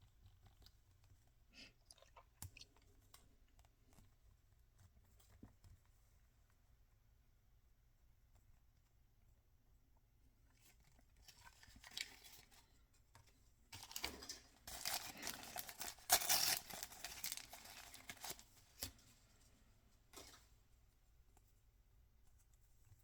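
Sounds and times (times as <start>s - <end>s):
packaging ripping and rustling: 11.2s - 12.6s, 13.8s - 18.9s.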